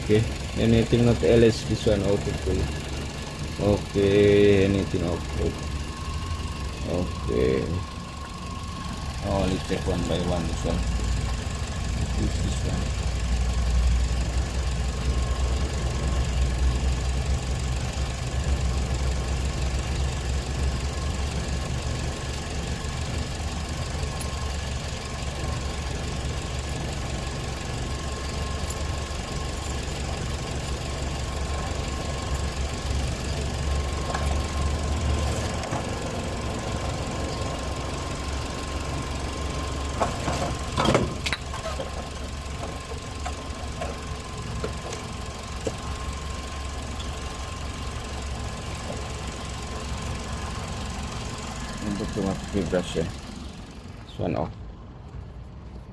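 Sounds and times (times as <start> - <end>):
car engine idling: 0.0 - 55.9.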